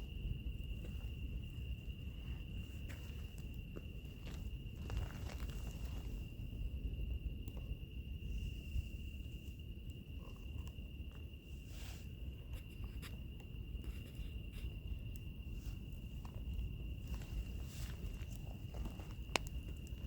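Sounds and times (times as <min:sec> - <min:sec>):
insects trilling: 0:00.0 - 0:20.0
fire crackling and popping: 0:12.2 - 0:20.0.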